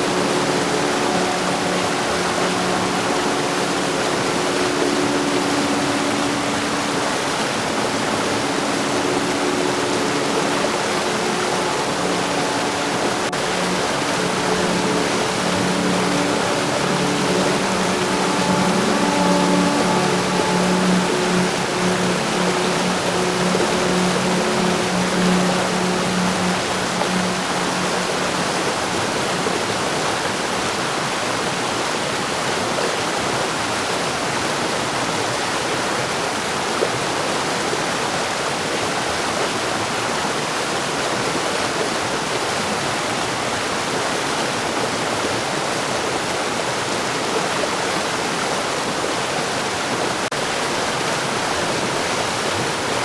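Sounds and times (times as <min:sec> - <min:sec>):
low engine-like drone: 0:00.0 - 0:30.4
heavy rain: 0:00.0 - 0:30.6.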